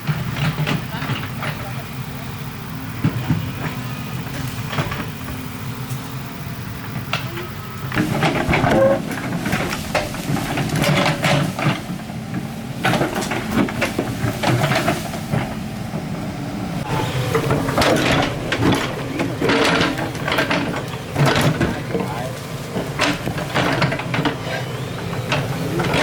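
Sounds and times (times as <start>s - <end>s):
excavator diesel engine: 0.0s - 26.0s
excavator scraping and knocking: 0.0s - 26.0s.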